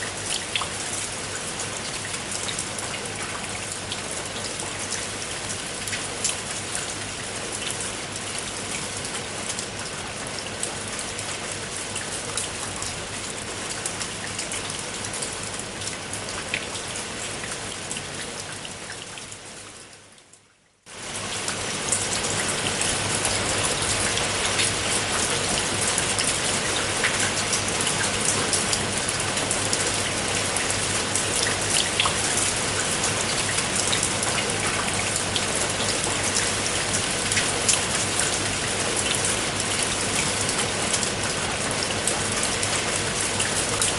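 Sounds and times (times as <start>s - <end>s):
rain on a tiled roof: 0.0s - 43.9s.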